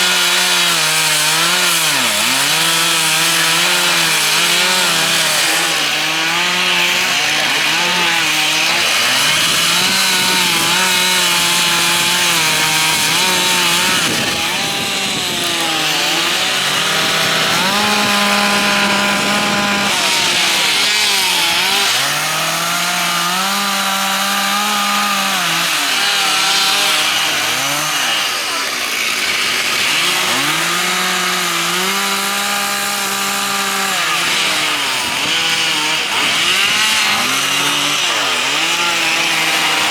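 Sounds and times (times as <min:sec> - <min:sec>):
chainsaws cutting wood: 0:00.0 - 0:39.9.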